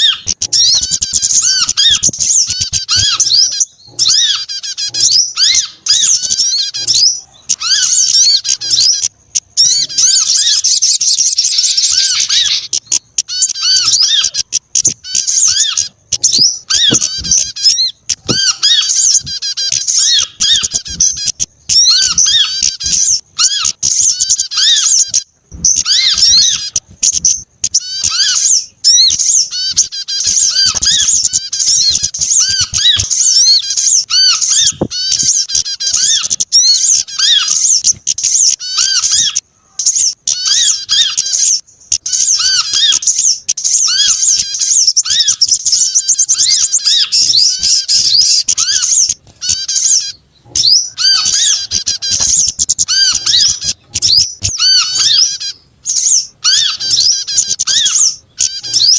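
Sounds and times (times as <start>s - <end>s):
songbirds chirping and trilling: 0.0s - 58.9s.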